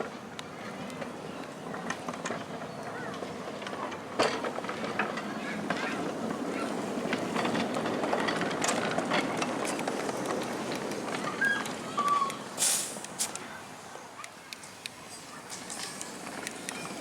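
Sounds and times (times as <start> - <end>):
miniature train clattering: 0.0 - 13.6, 14.2 - 17.0
short hiss: 12.6 - 13.5.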